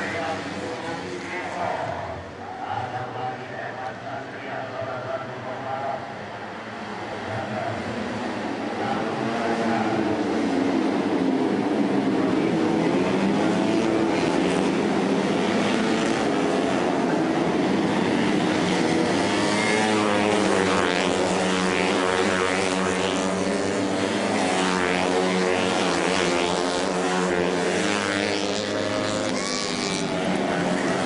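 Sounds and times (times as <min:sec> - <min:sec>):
racing motorcycle engines revving: 0:00.0 - 0:31.0.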